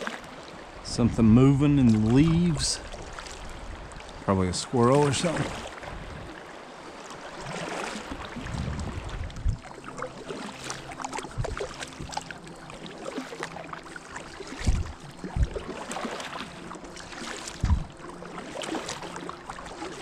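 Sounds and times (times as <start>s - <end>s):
paddle strokes splashing: 0.0s - 20.0s
water moving along hull: 0.0s - 20.0s
low thumps: 17.6s - 17.9s.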